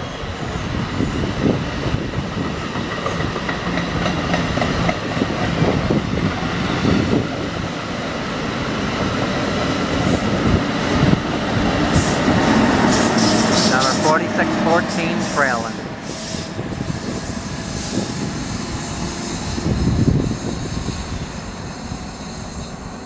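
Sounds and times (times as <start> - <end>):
train coaches rolling past: 0.0 - 23.0
wheels clicking over rail joints: 2.0 - 5.8.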